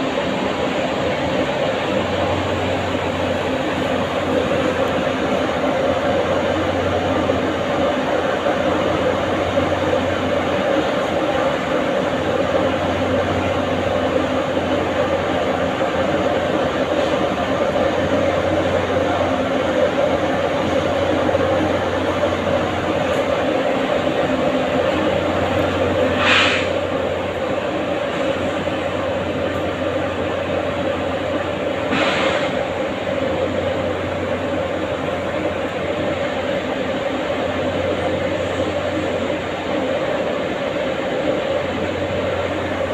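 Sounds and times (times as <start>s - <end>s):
machine hum with rushing noise: 0.0s - 42.9s.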